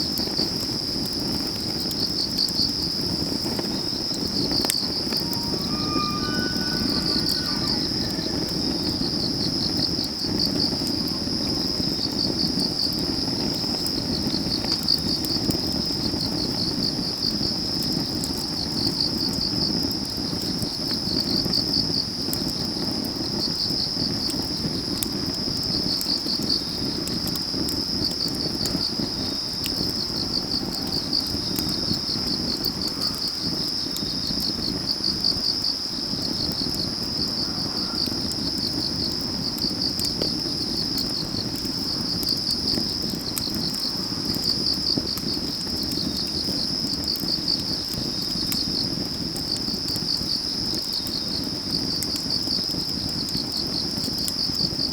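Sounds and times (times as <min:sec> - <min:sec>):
crickets trilling: 0:00.0 - 0:54.9
wood fire crackling: 0:00.0 - 0:54.9.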